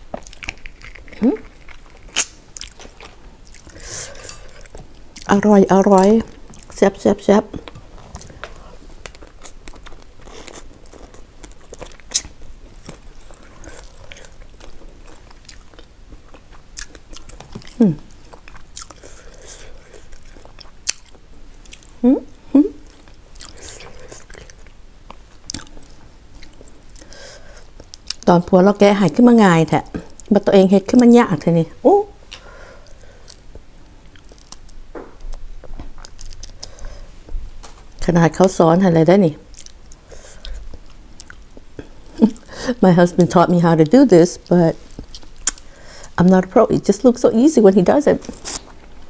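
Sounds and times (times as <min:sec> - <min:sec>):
wet chewing and smacking: 0:00.0 - 0:06.8, 0:07.5 - 0:22.0, 0:22.8 - 0:28.3, 0:32.3 - 0:38.0, 0:39.4 - 0:42.5, 0:43.2 - 0:45.7
crab shell cracking: 0:00.1 - 0:02.9.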